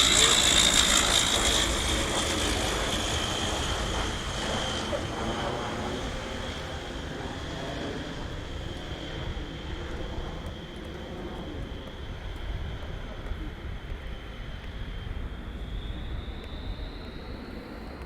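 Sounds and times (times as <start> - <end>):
turboprop engines whining: 0.0 - 18.0.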